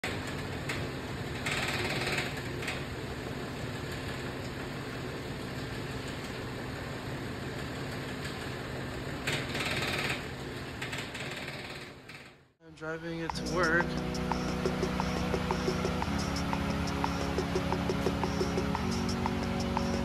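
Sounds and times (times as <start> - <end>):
car engine idling: 13.0 - 20.0
rush of high-pitched noise: 13.0 - 20.0.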